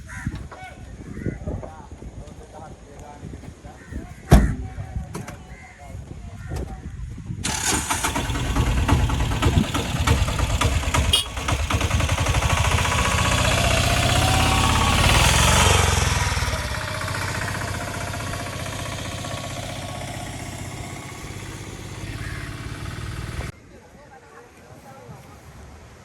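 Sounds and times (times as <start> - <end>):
engine running with rapid knocking: 7.4 - 23.5.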